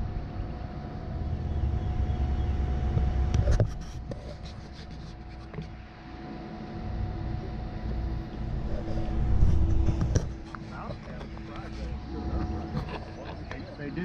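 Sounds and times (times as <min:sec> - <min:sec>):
low engine rumble: 0:00.0 - 0:14.0
sharp clicks and knocks: 0:09.5 - 0:11.7.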